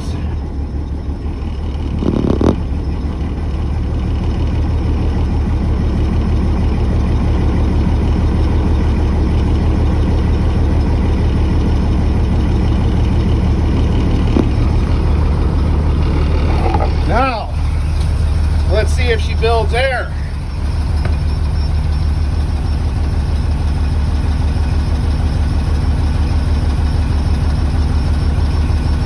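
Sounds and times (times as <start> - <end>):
diesel bus engine running: 0.0 - 29.0.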